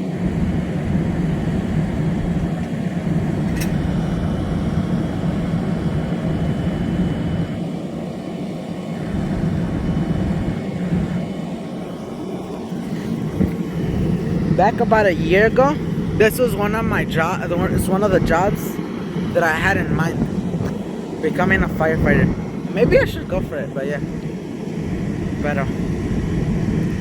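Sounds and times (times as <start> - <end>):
engine humming: 0.0 - 7.7.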